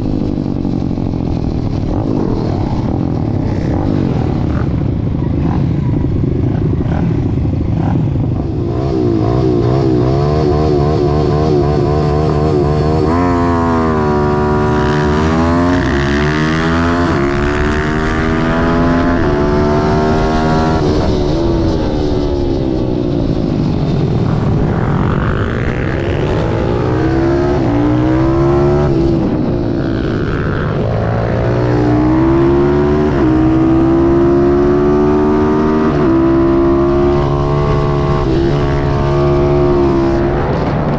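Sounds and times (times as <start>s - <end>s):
pit bike engine revving: 24.4s - 40.9s.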